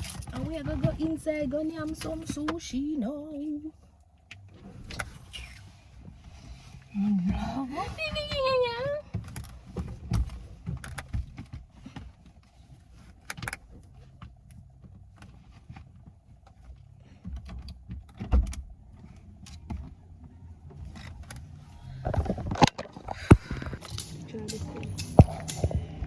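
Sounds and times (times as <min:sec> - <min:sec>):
low rumble: 0:20.2 - 0:26.0.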